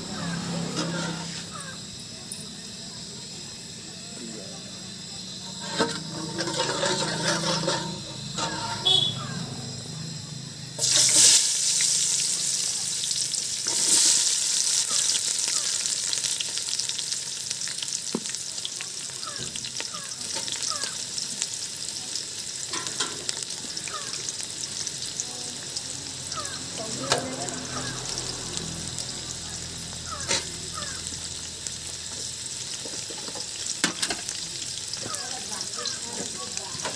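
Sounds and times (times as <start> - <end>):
food sizzling in hot oil: 0.0 - 36.9
stirring scrape in pan: 0.3 - 1.6, 5.6 - 9.0.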